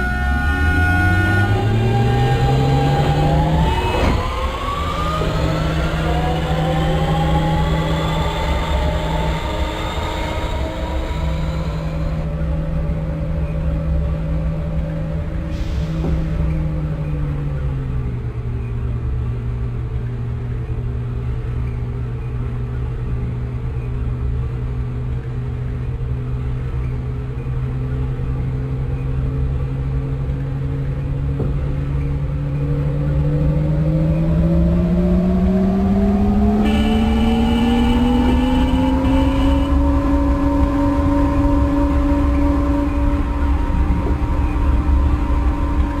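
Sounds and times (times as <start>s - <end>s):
traction motor whine: 0.0s - 17.6s, 32.3s - 46.0s
higher whine: 0.0s - 28.3s, 28.9s - 46.0s
train low rumble: 0.0s - 46.0s.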